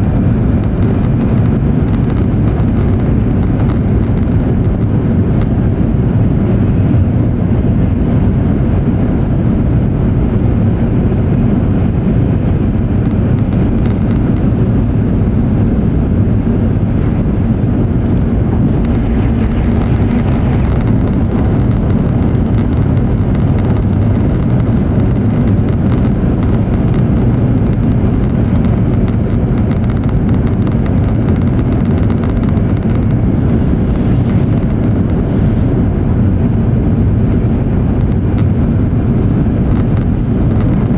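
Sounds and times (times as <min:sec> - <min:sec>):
fine sharp ticks: 0:00.0 - 0:04.9, 0:12.4 - 0:14.8, 0:17.8 - 0:35.2, 0:39.7 - 0:40.9
train interior rumble and roar: 0:00.0 - 0:40.9.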